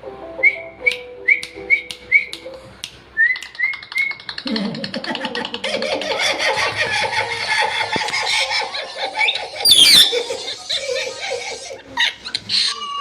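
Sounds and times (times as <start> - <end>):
parrot chattering: 9.6 - 10.5
parrot squawking: 9.6 - 10.5.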